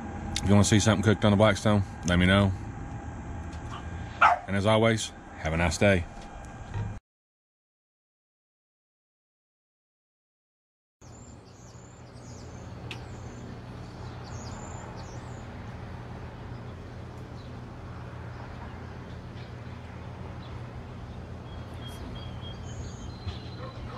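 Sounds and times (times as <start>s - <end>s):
steady low hum: 0.0s - 7.0s, 11.0s - 23.9s
birds chirping: 0.4s - 5.8s, 11.0s - 23.9s.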